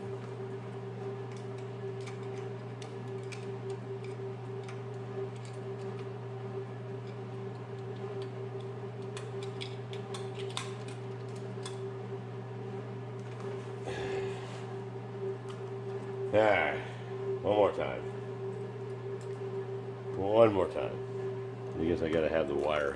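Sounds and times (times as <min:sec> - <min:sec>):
battery charger hum: 0:00.0 - 0:22.9.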